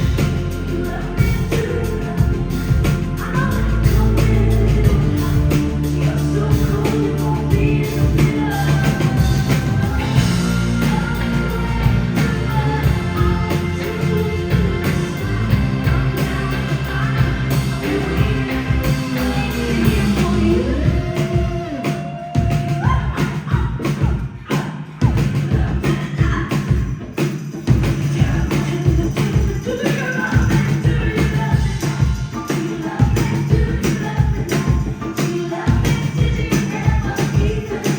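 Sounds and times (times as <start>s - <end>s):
live rock band playing: 0.0s - 37.9s
drum hits: 3.9s - 26.4s.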